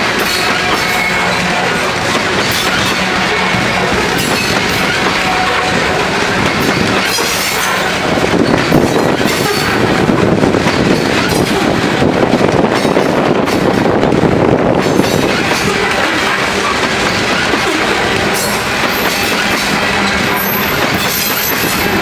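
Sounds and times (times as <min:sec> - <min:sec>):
train wheels clacking over rail joints: 0:00.0 - 0:22.0.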